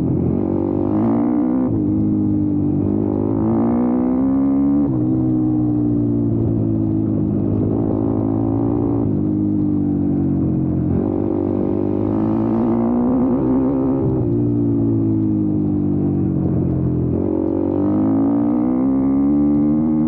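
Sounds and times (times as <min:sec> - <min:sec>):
motorbike engine revving: 0:00.0 - 0:05.4, 0:10.7 - 0:15.0, 0:16.6 - 0:20.0.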